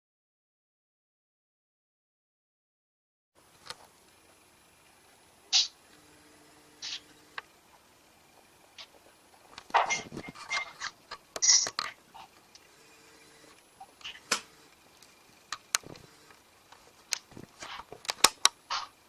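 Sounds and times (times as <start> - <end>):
sharp clicks and knocks: 14.0 - 19.0.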